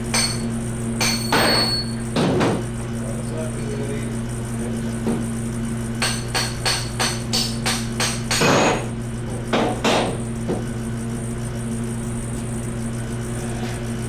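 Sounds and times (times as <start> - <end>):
steady low hum: 0.0 - 14.0
hammer tapping on metal: 0.1 - 2.6, 6.0 - 8.9.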